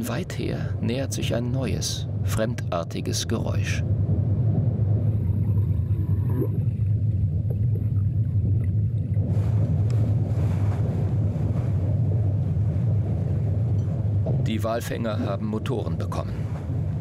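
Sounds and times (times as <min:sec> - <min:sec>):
ship engine hum: 0:00.0 - 0:17.0
water and waves hissing: 0:09.2 - 0:17.0.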